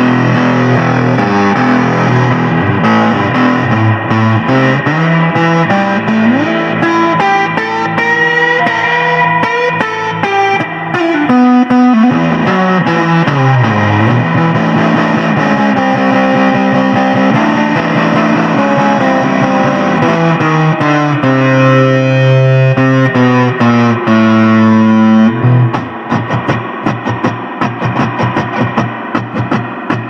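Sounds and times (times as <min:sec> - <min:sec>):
backing band: 0:00.0 - 0:30.0
distorted electric guitar solo: 0:00.0 - 0:30.0
drums playing: 0:22.9 - 0:30.0.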